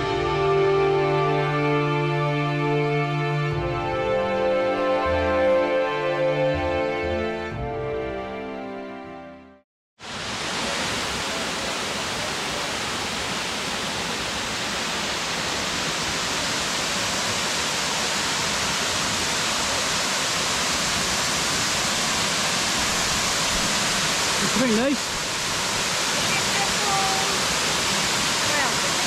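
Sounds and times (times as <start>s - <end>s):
waterfall rushing: 0.0s - 7.0s, 10.0s - 29.0s
background music: 0.0s - 9.6s.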